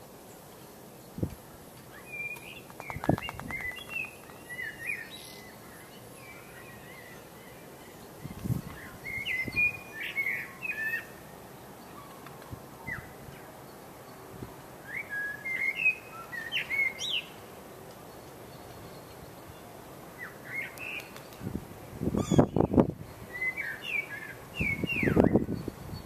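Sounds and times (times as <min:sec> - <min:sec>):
songbird whistling song: 0:01.9 - 0:11.2, 0:11.8 - 0:13.5, 0:14.8 - 0:17.4, 0:22.2 - 0:26.0.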